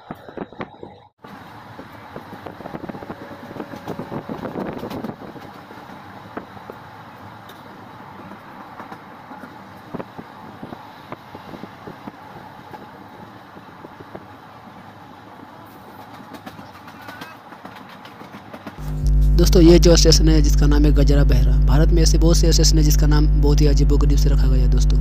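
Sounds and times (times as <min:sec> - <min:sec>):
train rumbling on track: 0:00.0 - 0:18.8
wheels clicking and rattling: 0:01.7 - 0:18.8.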